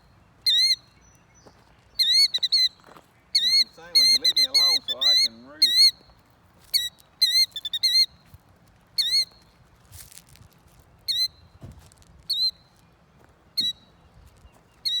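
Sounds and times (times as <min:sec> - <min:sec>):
shrill bird calls: 0:00.4 - 0:06.1, 0:06.7 - 0:08.1, 0:09.0 - 0:09.4, 0:11.1 - 0:11.5, 0:14.7 - 0:15.0.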